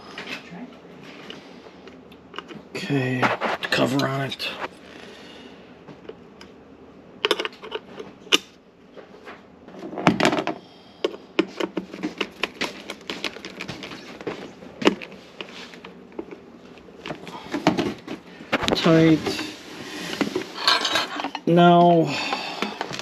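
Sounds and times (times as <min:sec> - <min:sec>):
parts clicking and rattling: 0:07.2 - 0:08.5, 0:10.1 - 0:16.4, 0:20.1 - 0:23.0.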